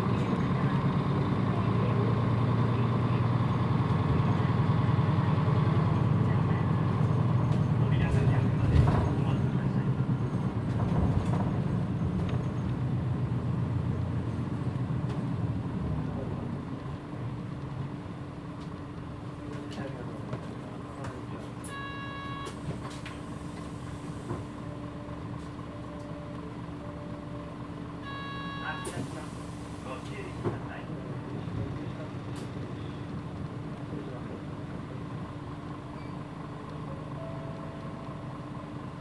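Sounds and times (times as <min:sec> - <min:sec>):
bus engine idling: 0:00.0 - 0:39.0
short beeps: 0:21.7 - 0:22.6, 0:28.0 - 0:29.0, 0:36.0 - 0:36.2, 0:37.2 - 0:38.3.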